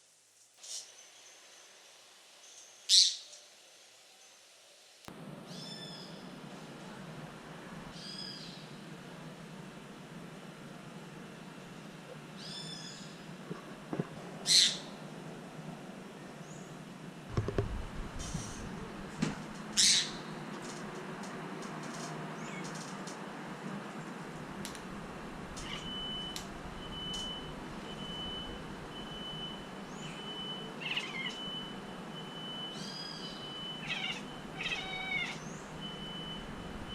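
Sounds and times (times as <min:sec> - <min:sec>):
low knocks: 0:17.3 - 0:17.9
cat meowing: 0:25.6 - 0:26.1, 0:30.8 - 0:31.4, 0:33.7 - 0:35.5
faint bird chirp: 0:25.6 - 0:28.5, 0:29.2 - 0:36.9.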